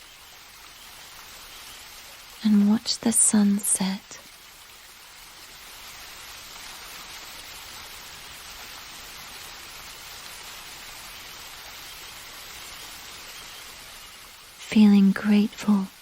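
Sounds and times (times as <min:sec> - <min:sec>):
rushing waterfall: 0:00.0 - 0:16.0.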